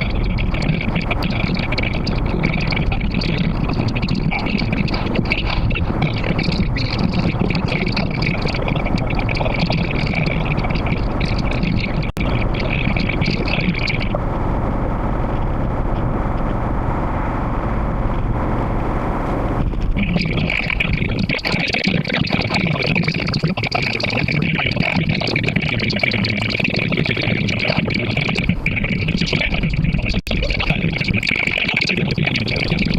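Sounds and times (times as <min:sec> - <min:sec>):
car road and wind noise: 0:14.1 - 0:19.9.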